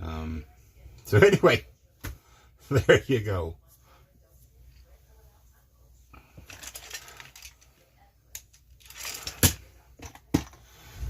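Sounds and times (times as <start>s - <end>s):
rustling handling noise: 6.3s - 7.8s.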